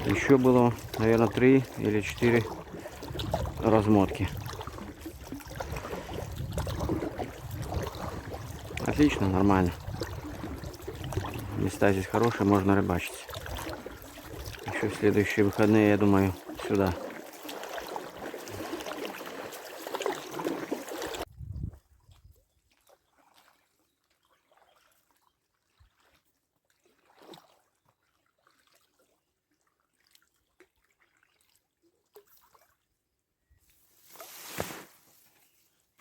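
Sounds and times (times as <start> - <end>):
water dripping: 0.0 - 21.2
oar splashes: 0.0 - 21.3, 22.0 - 33.0, 33.9 - 35.6
water rushing around boat: 0.0 - 21.3.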